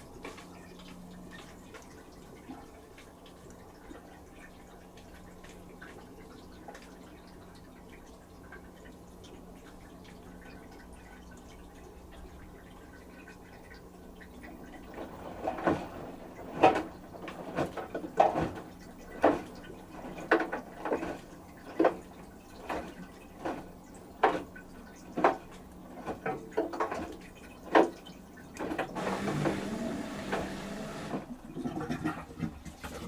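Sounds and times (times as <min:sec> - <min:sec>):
washing machine motor hum: 0:00.0 - 0:33.0
water draining: 0:00.6 - 0:33.0.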